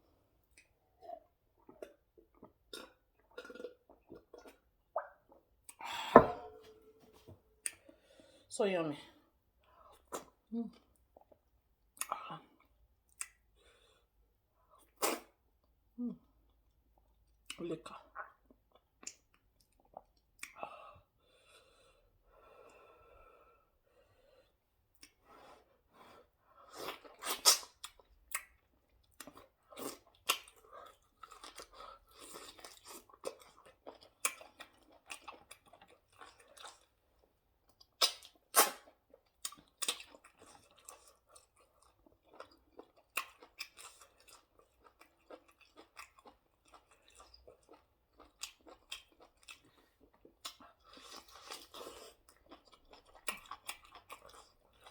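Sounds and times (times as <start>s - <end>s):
wet chewing and lip smacks: 26.9s - 54.9s.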